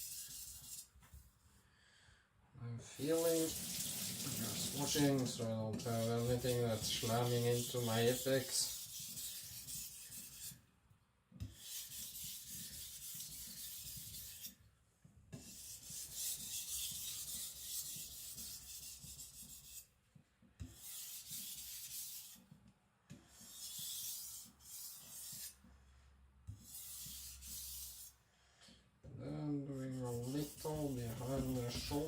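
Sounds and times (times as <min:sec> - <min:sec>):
knife scraping on whetstone: 0:04.4 - 0:10.6.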